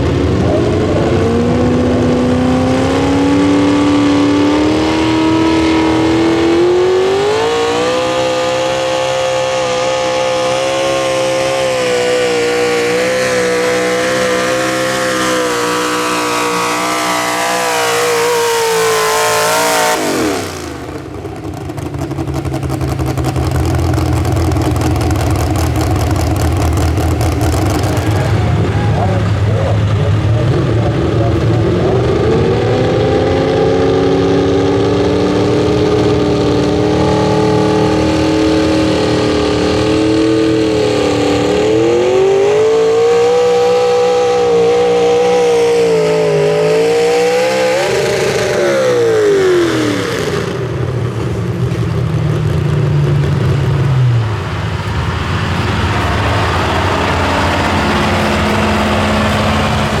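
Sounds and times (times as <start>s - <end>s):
truck engine at full throttle: 0.0s - 60.0s.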